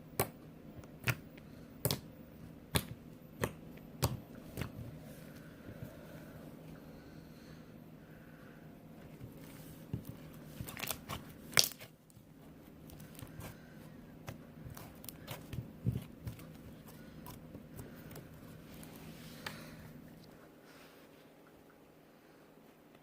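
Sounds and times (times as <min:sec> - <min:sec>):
slime squeezed with sticky pops: 0:10.6 - 0:11.9.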